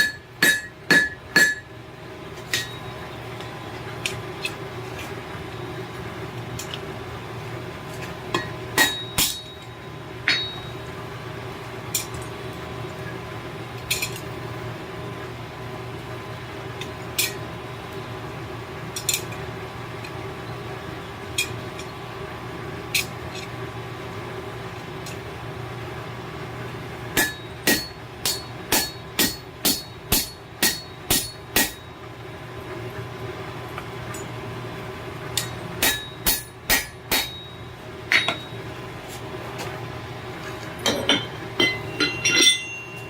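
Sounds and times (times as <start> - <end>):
hammer striking steel on anvil: 0.0 - 1.7, 2.5 - 2.9, 8.4 - 10.7, 27.2 - 31.9, 35.4 - 38.6, 40.9 - 43.0
steady low hum: 0.0 - 43.0.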